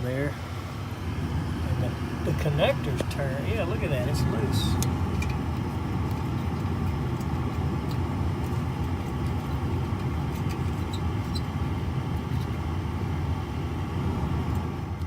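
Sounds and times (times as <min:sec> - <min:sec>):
gas furnace droning: 0:00.0 - 0:15.0.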